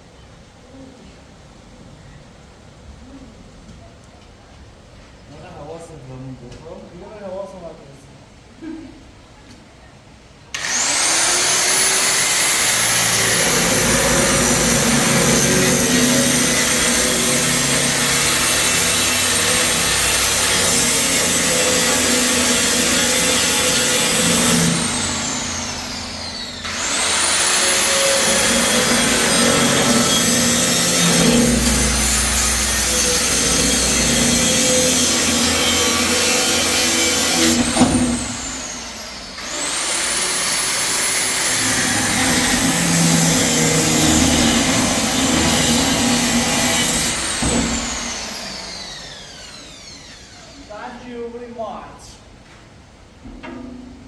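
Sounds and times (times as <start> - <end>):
electric power tool grinding: 10.6 - 50.6.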